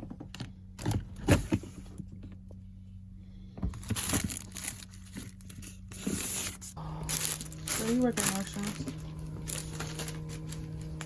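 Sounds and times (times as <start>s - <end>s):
packaging crinkling and rustling: 3.8s - 11.0s.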